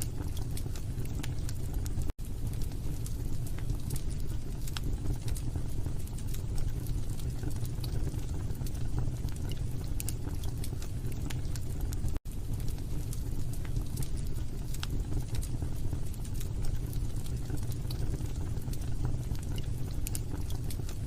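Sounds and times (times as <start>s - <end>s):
fire crackles and pops: 0.0s - 21.0s
fire rumbling: 0.0s - 21.0s.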